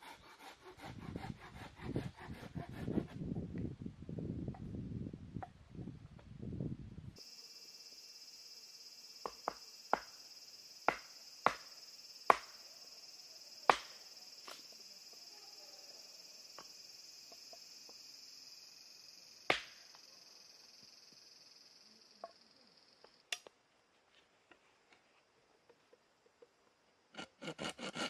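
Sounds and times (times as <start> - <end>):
insect chirring: 7.2 - 23.5.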